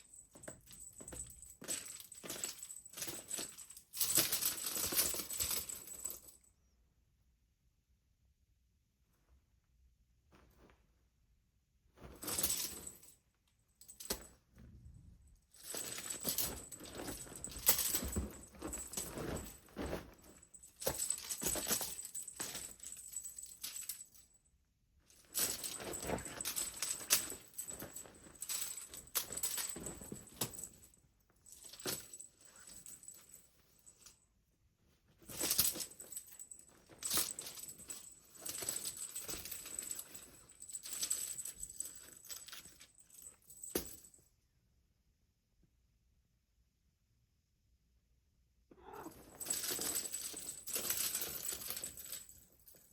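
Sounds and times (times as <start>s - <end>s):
cat toy jingling and rattling: 13.9s - 24.2s, 25.2s - 30.9s, 35.3s - 44.0s, 48.8s - 52.9s.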